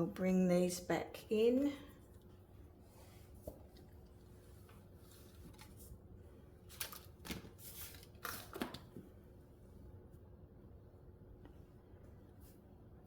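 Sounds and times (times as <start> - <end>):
paper rustling and sliding: 6.7 - 8.9.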